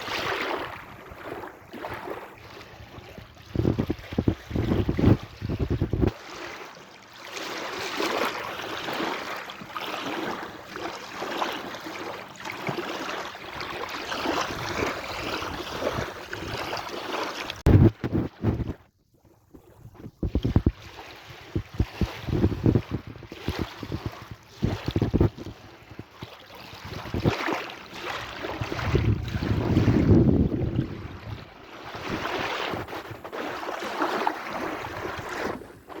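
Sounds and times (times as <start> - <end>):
sea waves washing in: 0.0 - 18.0, 20.2 - 36.0
wind buffeting microphone: 2.7 - 6.2, 13.8 - 16.9, 17.6 - 18.9, 19.6 - 33.6.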